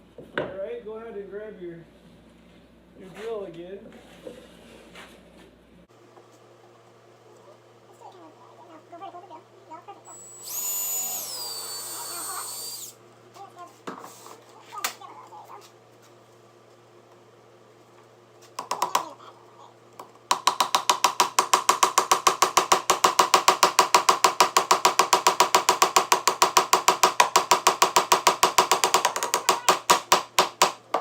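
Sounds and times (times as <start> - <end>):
handheld drill clicking: 10.1 - 12.9.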